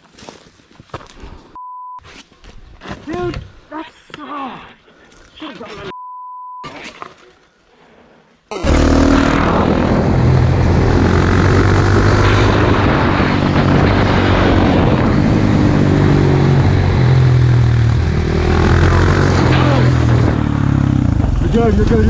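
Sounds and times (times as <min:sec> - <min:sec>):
motorcycle engine running: 0:08.5 - 0:11.8.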